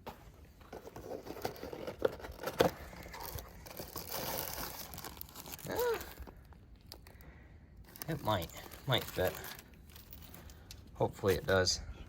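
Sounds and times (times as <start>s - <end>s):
rag rustling and crumpling: 0.6s - 6.4s, 7.9s - 10.6s.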